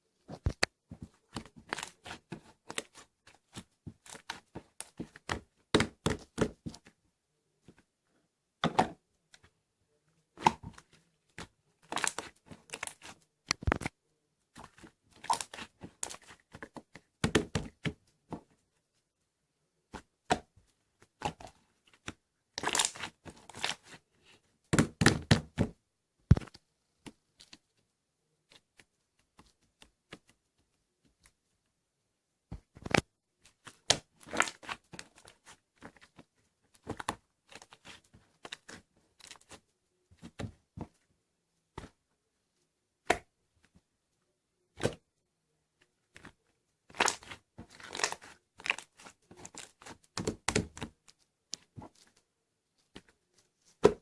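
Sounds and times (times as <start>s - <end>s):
slime crackling and popping: 22.6s - 24.0s, 46.9s - 50.9s.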